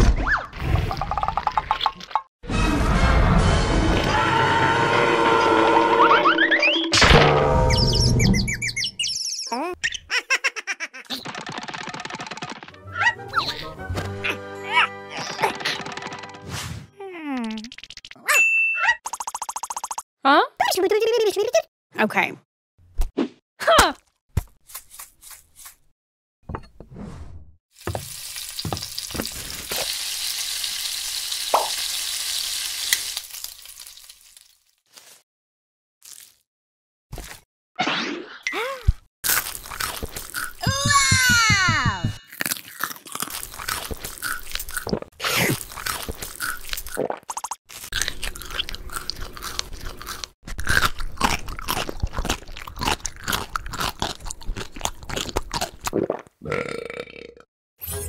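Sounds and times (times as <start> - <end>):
food frying in hot oil: 27.8 - 34.8
crunchy bites and chewing: 39.2 - 40.6, 42.2 - 47.0, 47.7 - 56.0.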